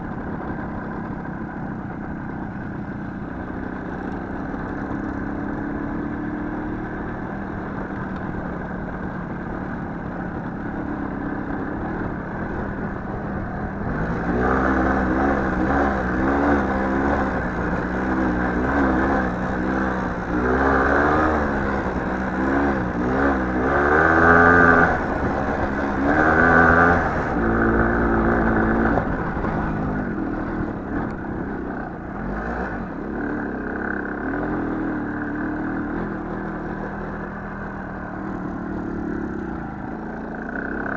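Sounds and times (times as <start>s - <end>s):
small motorcycle engine revving: 13.3s - 40.9s.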